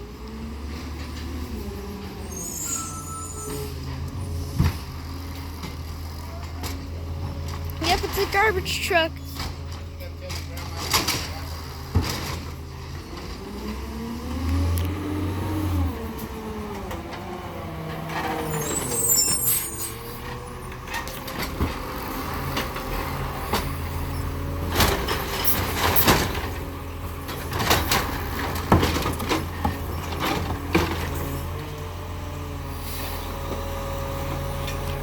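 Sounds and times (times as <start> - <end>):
garbage truck diesel engine: 0.0 - 35.0
high squeal: 2.2 - 3.8, 18.4 - 20.1.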